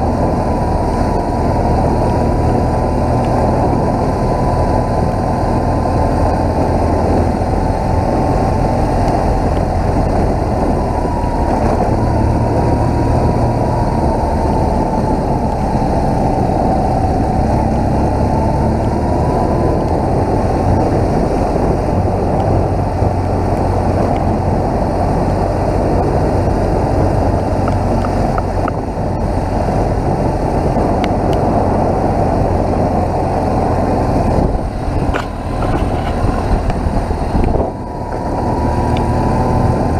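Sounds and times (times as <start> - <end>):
road noise: 0.0 - 39.9
rushing wind: 0.0 - 39.9
motorcycle engine running: 19.5 - 39.9.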